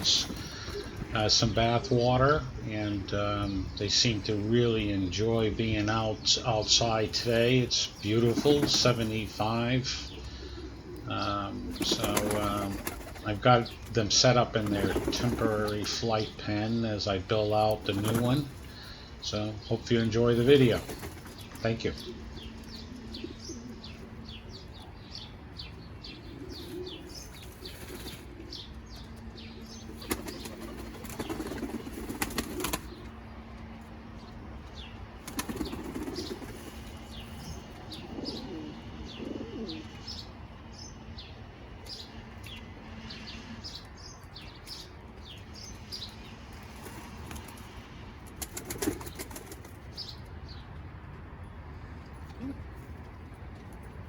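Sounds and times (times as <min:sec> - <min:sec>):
birds chirping: 0:00.0 - 0:54.0
pigeons flapping wings in water: 0:11.8 - 0:13.2, 0:30.0 - 0:33.0, 0:35.2 - 0:36.8, 0:48.4 - 0:49.8.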